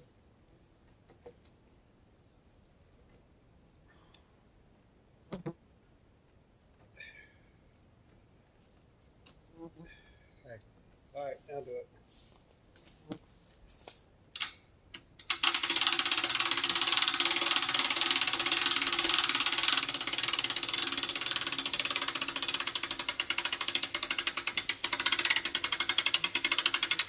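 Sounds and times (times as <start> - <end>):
winch clicking rattle: 15.2 - 27.0.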